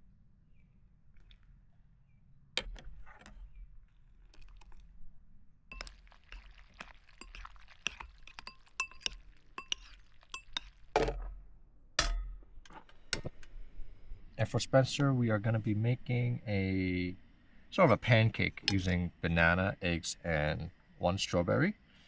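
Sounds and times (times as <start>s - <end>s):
utensils and dishes clinking: 5.7s - 10.8s.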